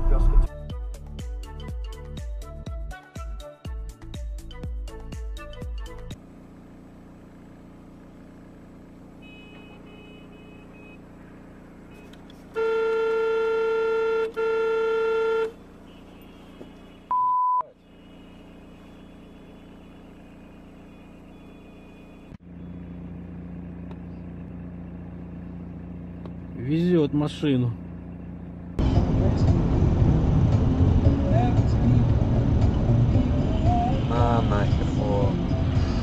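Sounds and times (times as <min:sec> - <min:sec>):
vehicle running: 0:00.0 - 0:01.6, 0:04.0 - 0:17.1, 0:17.7 - 0:36.0
road noise: 0:06.2 - 0:36.0
vehicle horn blasts: 0:09.1 - 0:22.4
censor bleep: 0:17.1 - 0:17.8.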